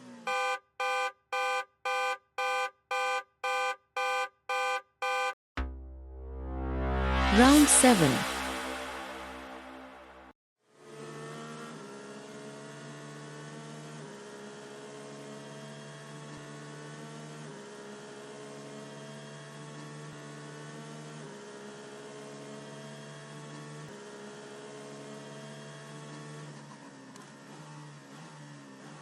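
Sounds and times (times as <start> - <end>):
synthesized drone: 5.6 - 10.3.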